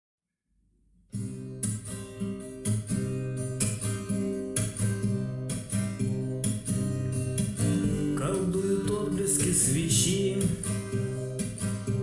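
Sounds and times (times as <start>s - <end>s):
acoustic guitar strumming: 1.1s - 12.0s.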